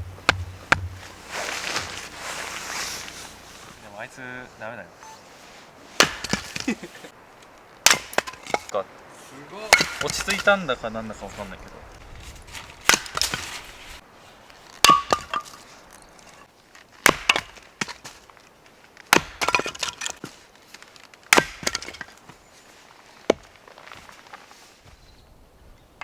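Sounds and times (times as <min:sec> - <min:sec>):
short ringing tone: 0:05.0 - 0:05.3
firewood cracking and splintering: 0:06.0 - 0:10.6, 0:11.8 - 0:24.6.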